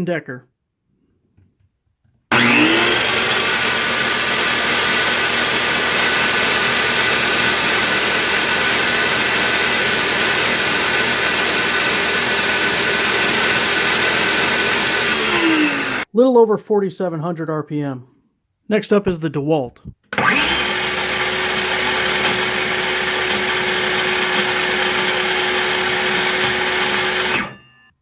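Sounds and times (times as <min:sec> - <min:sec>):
circular saw whining: 0:02.3 - 0:16.1, 0:20.1 - 0:27.9.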